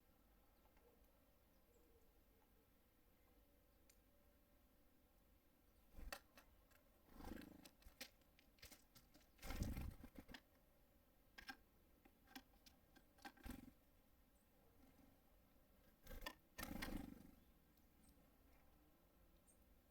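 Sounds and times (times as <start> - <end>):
birds tapping on wooden feeder: 6.0 - 10.6, 11.3 - 13.7, 15.9 - 17.2
short rustling bursts: 7.1 - 10.4.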